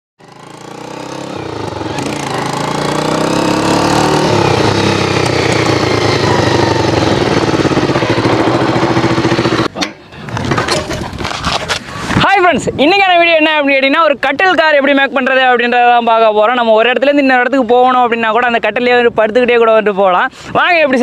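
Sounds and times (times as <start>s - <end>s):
small engine running: 0.2s - 9.7s.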